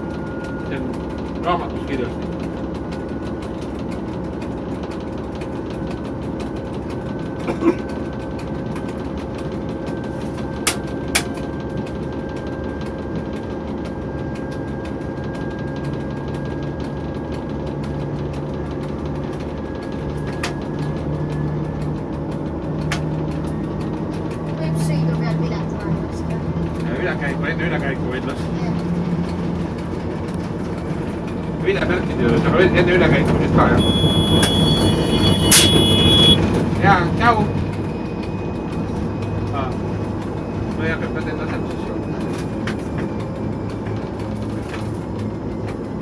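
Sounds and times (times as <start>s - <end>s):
diesel engine running: 0.0s - 46.0s
turbocharger whistle: 33.8s - 36.5s
short sharp clicks: 35.3s - 36.4s.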